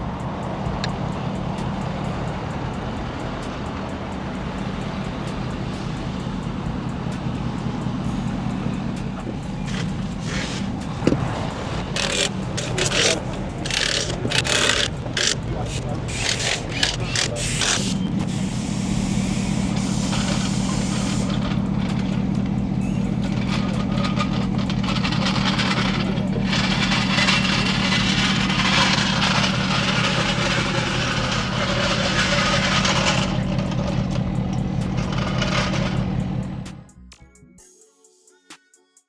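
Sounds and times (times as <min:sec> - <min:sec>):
vehicle engine running: 0:00.0 - 0:37.0
bursts of hissing: 0:09.4 - 0:21.4.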